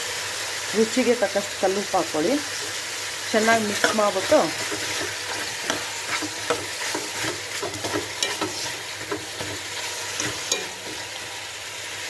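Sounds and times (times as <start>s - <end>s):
chicken sizzling in hot oil: 0.0s - 12.0s
spoon scraping against pot: 3.6s - 11.2s.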